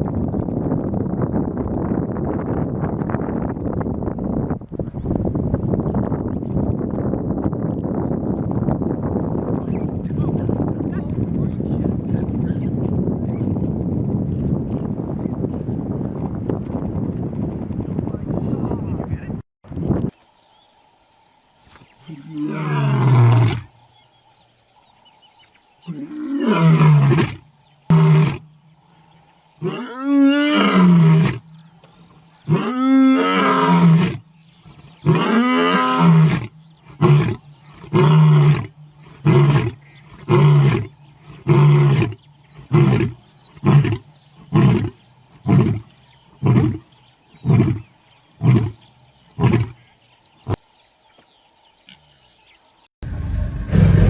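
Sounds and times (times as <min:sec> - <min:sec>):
lion roaring: 0:22.0 - 0:23.7, 0:53.1 - 0:54.0.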